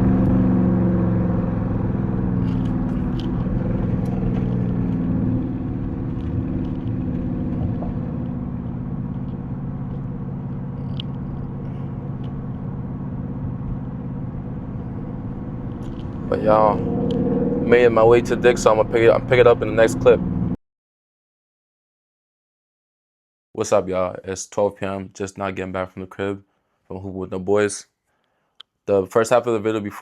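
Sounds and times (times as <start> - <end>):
car engine running while driving: 0.0 - 20.6.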